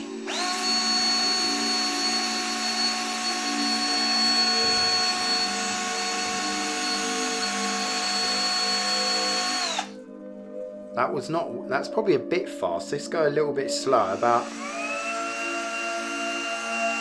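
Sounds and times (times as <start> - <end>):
power drill whining: 0.0 - 10.0, 14.0 - 17.0.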